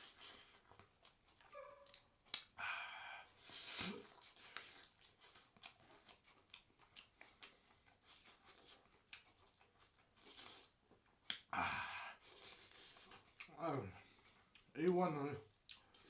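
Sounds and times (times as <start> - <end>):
food being torn and chewed: 3.6 - 11.4, 15.5 - 16.0.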